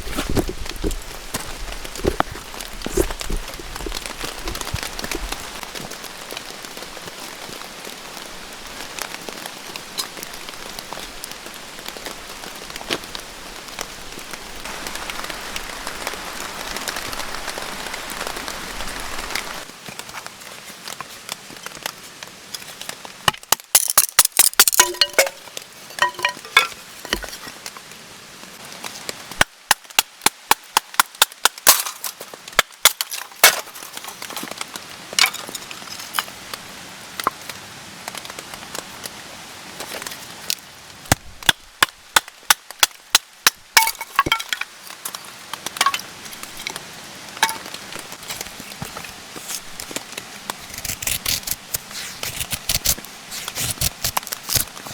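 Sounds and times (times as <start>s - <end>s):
rain pattering on a tarp: 0.0s - 24.8s, 26.8s - 54.9s
sharp knocks and clinks: 24.6s - 25.4s, 26.0s - 27.3s.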